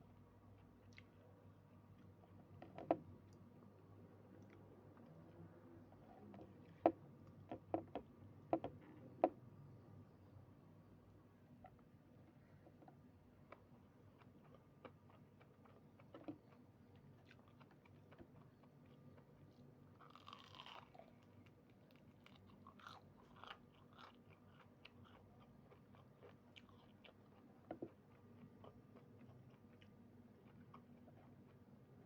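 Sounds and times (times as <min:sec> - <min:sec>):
chewing and crunching food: 0:00.0 - 0:03.5, 0:12.6 - 0:32.0.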